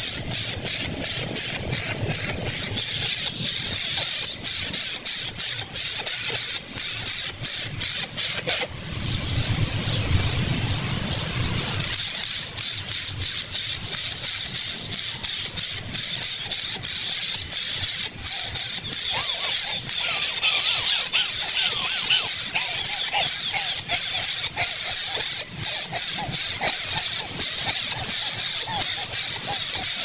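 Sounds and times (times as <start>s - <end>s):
crickets and insects chirping: 0.0s - 30.0s
rapid pulsing high chirp: 0.0s - 30.0s.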